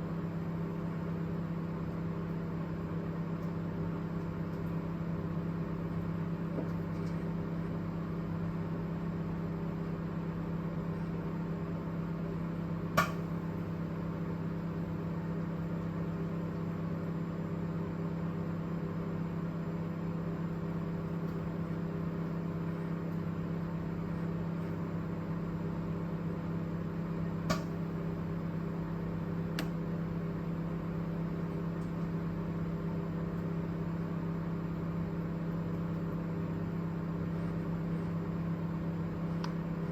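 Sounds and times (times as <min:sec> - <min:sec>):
microwave oven humming: 0:00.0 - 0:39.9
sharp snapping click: 0:13.0 - 0:13.3, 0:27.5 - 0:27.8.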